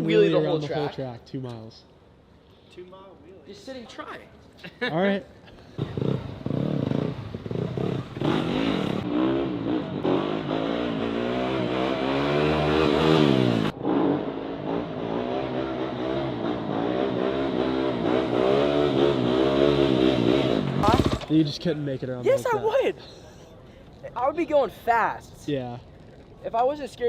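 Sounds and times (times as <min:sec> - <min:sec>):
motocross bike engine revving: 0:05.8 - 0:21.4.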